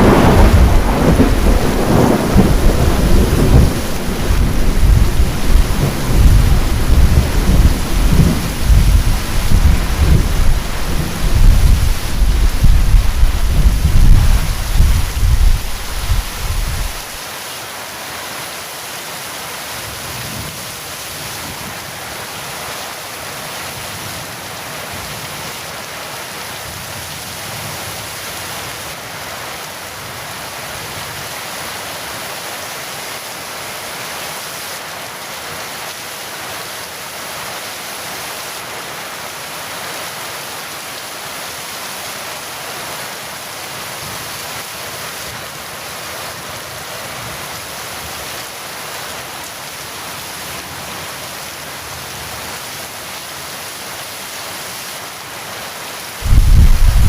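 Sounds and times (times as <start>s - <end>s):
thunder rumble: 0.0s - 17.2s, 56.2s - 57.0s
heavy rain falling: 0.0s - 57.0s.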